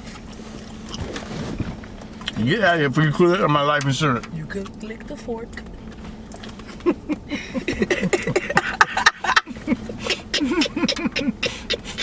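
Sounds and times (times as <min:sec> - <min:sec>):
mouth clicks and smacks: 0:10.0 - 0:12.0
man humming while eating: 0:10.1 - 0:12.0.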